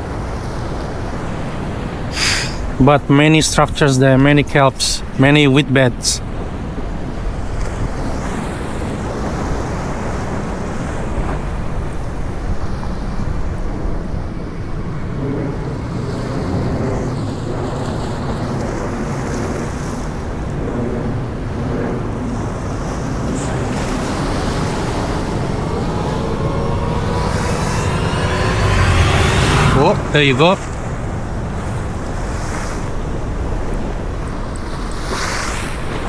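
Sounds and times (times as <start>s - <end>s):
sea waves: 22.7s - 29.0s
faint rising whine: 23.1s - 31.6s.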